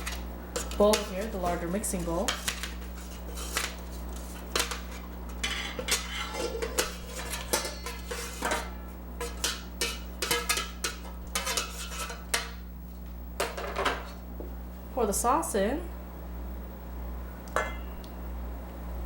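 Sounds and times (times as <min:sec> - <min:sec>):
steady low hum: 0:00.0 - 0:19.0
utensil clinking against pot: 0:04.5 - 0:12.6.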